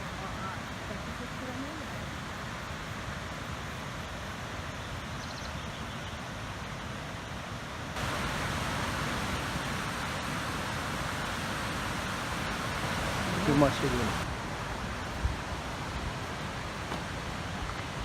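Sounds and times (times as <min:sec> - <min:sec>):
waterfall rushing: 0:08.0 - 0:18.0.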